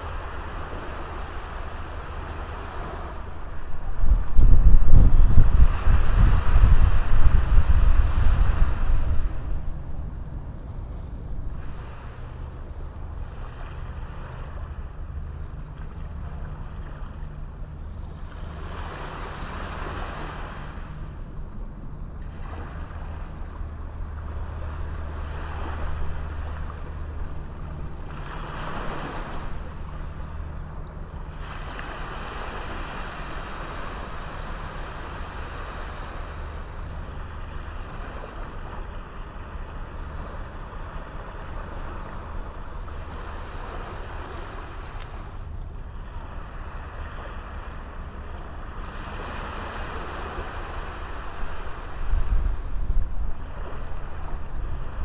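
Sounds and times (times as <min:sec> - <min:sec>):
small waves breaking on beach: 0:00.0 - 0:55.0
steady low rumble: 0:00.0 - 0:55.0.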